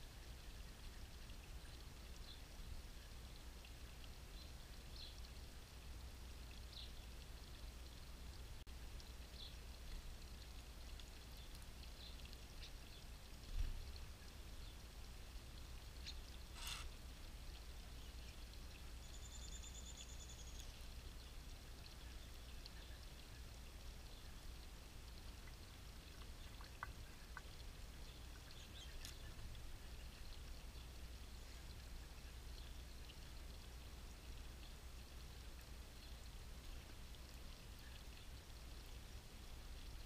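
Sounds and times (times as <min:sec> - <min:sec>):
small birds chirping: 0:00.5 - 0:05.3, 0:09.2 - 0:14.9, 0:15.6 - 0:17.0, 0:17.6 - 0:24.7, 0:25.4 - 0:34.8.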